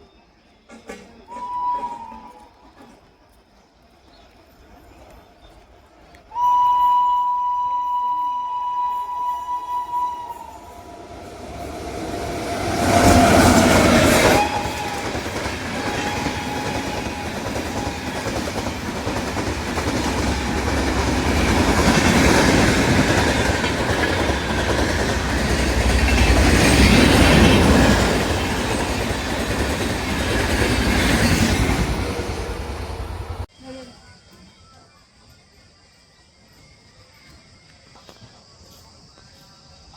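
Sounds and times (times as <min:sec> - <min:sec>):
train passing with wheel clatter: 0:00.1 - 0:06.3, 0:08.0 - 0:33.5
train horn: 0:01.3 - 0:02.7, 0:06.4 - 0:18.4, 0:19.9 - 0:22.1.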